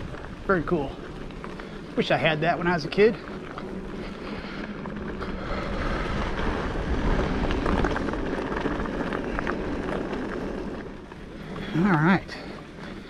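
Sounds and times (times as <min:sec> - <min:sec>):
bike rattles and clicks: 0:00.0 - 0:13.0
low rumble of tyres: 0:00.0 - 0:13.0
wind buffeting microphone: 0:00.0 - 0:13.0.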